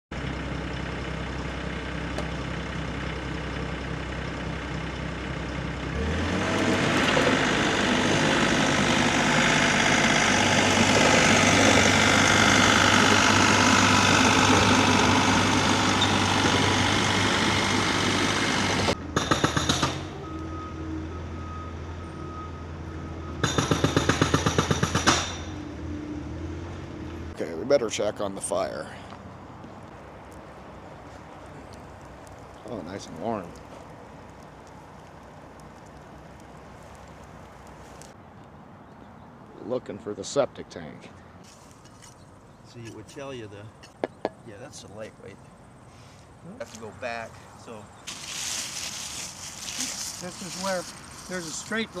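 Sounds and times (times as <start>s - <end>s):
backhoe engine running and revving: 0.2s - 27.4s.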